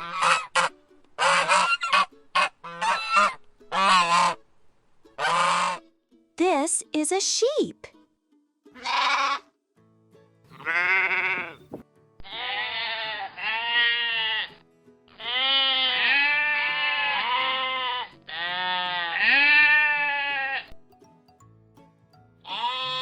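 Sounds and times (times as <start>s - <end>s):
sheep bleating: 8.7s - 9.5s, 10.5s - 20.8s, 22.4s - 23.0s.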